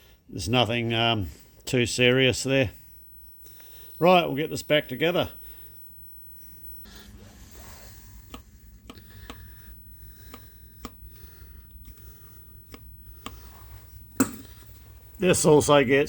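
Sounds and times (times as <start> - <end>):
steady low hum: 0.0 - 16.0
metal parts clicking and tapping: 14.2 - 14.8.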